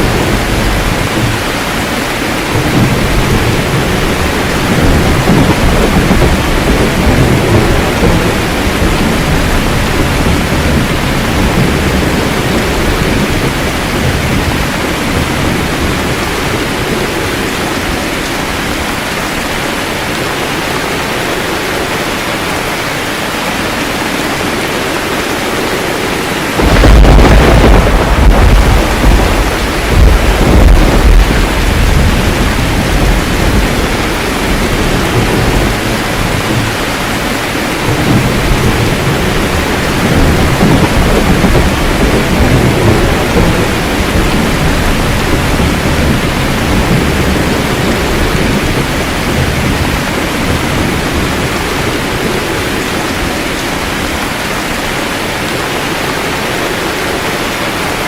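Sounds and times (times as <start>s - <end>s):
loud roll of thunder: 0.0s - 17.9s, 25.5s - 53.3s
steady rain: 0.0s - 58.0s
thunder rumbling: 0.0s - 58.0s.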